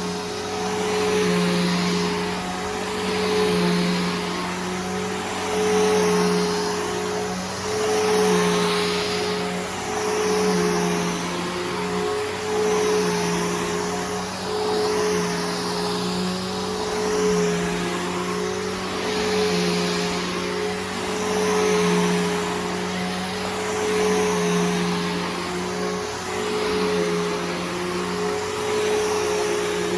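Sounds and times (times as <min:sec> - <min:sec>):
vacuum cleaner running: 0:00.0 - 0:29.9.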